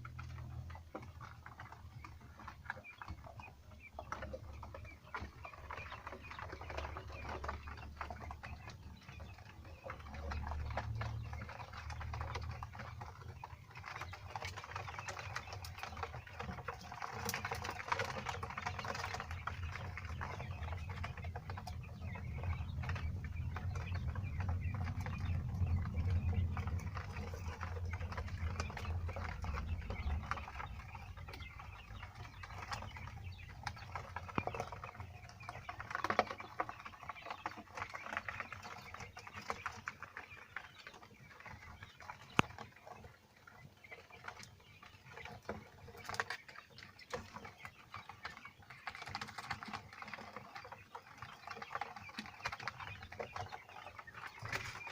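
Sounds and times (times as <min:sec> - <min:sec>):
quail chicks tapping and pattering: 0:00.0 - 0:54.9.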